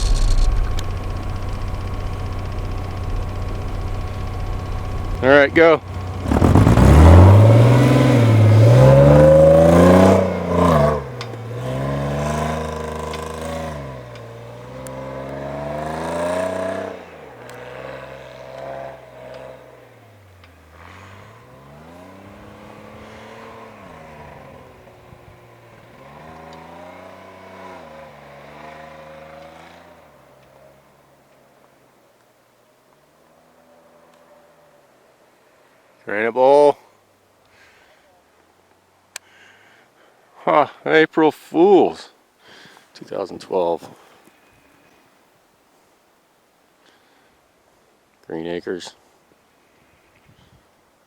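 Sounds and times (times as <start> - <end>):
off-road vehicle engine revving: 0.0 - 30.2.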